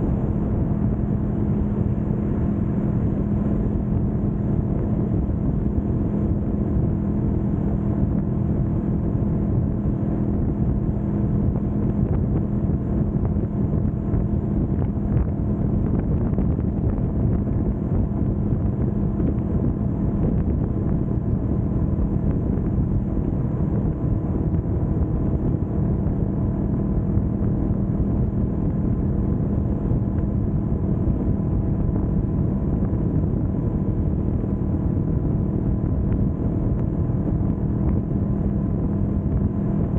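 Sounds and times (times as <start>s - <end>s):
motorcycle engine cruising: 0.0s - 39.9s
wind rushing over microphone: 0.0s - 39.9s.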